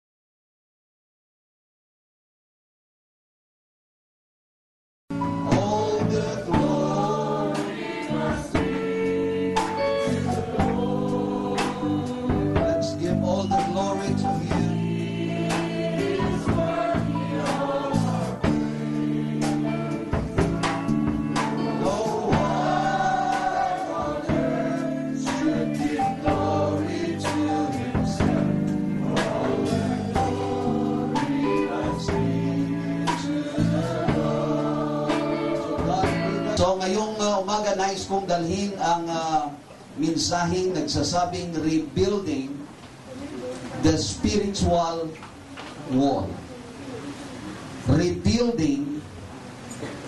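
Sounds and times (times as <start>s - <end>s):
instrumental backing with beat: 5.1s - 36.6s
choir singing gospel music: 5.1s - 42.7s.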